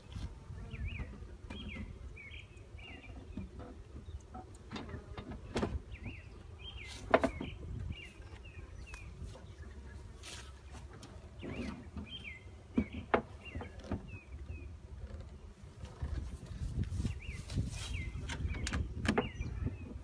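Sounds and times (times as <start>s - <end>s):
wind rumble: 13.7s - 20.0s.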